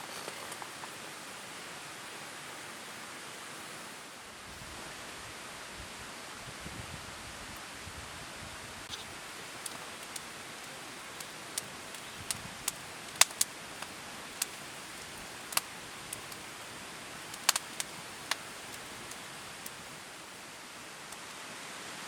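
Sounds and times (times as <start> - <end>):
campfire crackling: 0.0 - 4.8, 8.8 - 21.7.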